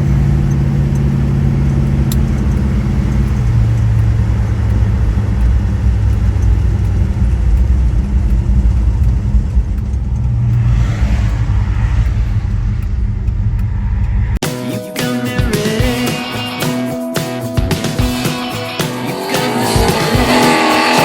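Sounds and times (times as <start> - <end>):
car engine rumbling: 0.0 - 14.4
music: 14.4 - 21.0.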